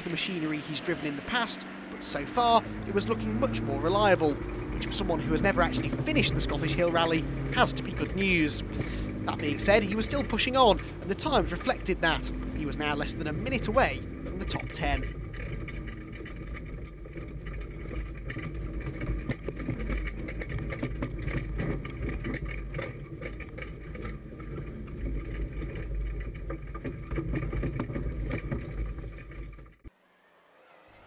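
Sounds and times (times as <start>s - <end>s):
rally car engine running hard: 0.0s - 29.8s
sharp knocks and clatters: 14.1s - 29.9s.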